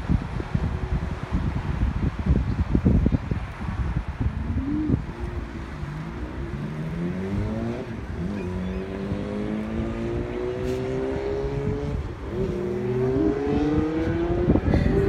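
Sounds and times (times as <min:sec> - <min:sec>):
low wind rumble: 0:00.0 - 0:15.0
car engine accelerating: 0:04.2 - 0:15.0.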